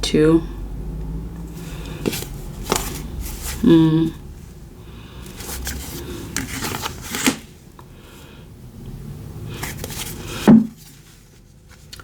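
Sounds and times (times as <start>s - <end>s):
cards shuffling: 1.6s - 3.7s, 5.3s - 7.6s, 9.6s - 12.0s.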